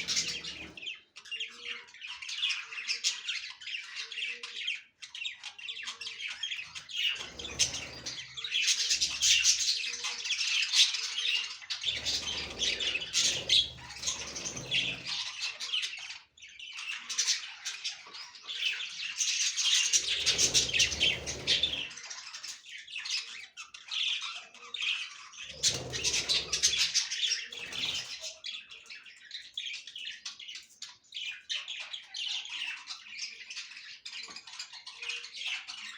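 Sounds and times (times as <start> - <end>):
budgerigars chattering: 0.0 - 16.2, 16.8 - 22.5, 23.8 - 29.1.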